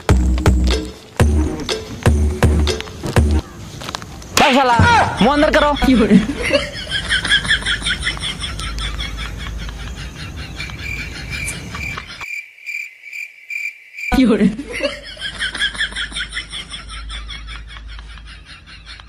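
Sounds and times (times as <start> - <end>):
crickets chirping: 0.8 - 17.9.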